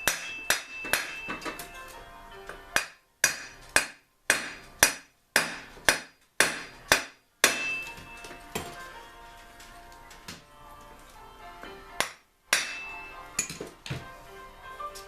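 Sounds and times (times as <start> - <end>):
hammer striking metal: 0.0 - 1.7, 2.8 - 8.8, 12.0 - 13.7.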